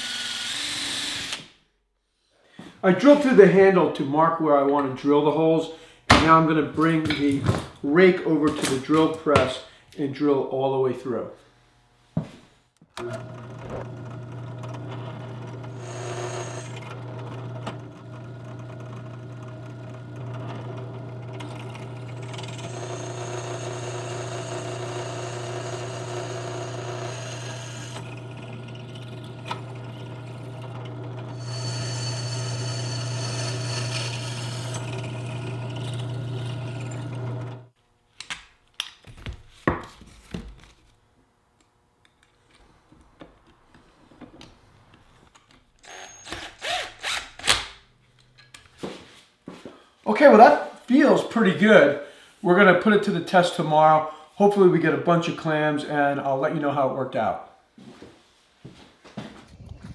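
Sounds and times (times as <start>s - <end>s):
drill press drilling metal: 0.0s - 1.5s, 13.0s - 37.7s, 45.8s - 47.8s.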